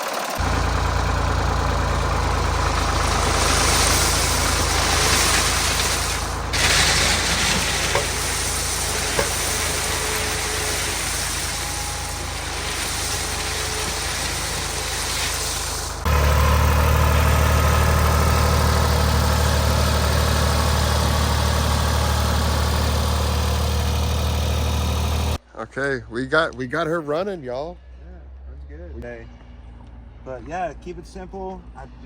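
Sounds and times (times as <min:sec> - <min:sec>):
tractor engine idling: 0:00.0 - 0:25.4.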